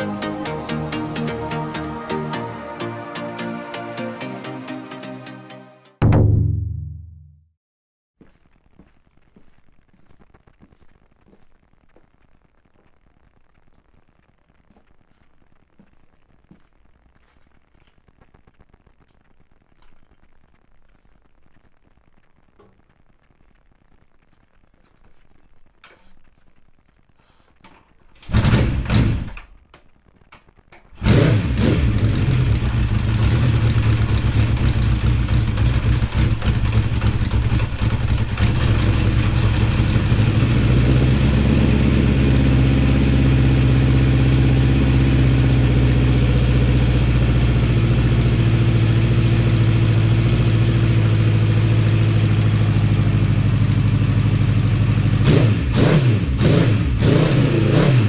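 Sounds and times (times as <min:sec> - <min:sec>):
motorcycle engine starting and idling: 0:28.2 - 0:29.4, 0:31.0 - 0:58.0.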